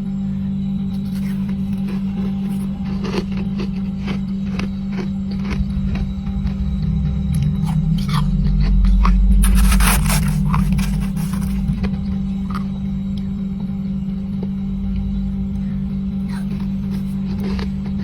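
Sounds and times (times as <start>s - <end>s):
steady low hum: 0.0s - 18.0s
frost crunching while chewed: 0.9s - 6.6s, 7.3s - 12.9s, 16.2s - 18.0s.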